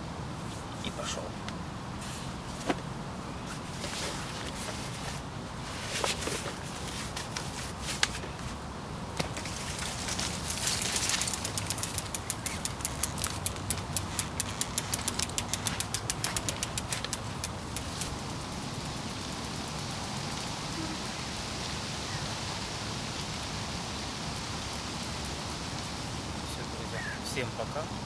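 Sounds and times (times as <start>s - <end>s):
steady hiss: 0.2s - 28.0s
bicycle freewheel ticking: 10.2s - 21.4s.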